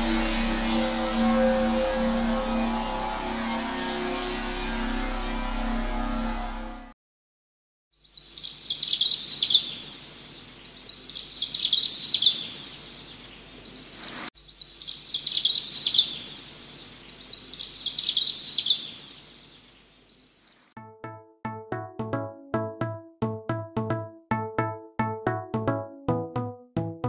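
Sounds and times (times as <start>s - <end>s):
bird chirping: 8.0s - 20.7s.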